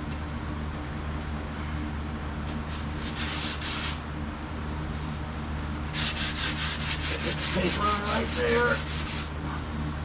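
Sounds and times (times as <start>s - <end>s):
sandpaper rubbing strokes: 2.8s - 10.0s.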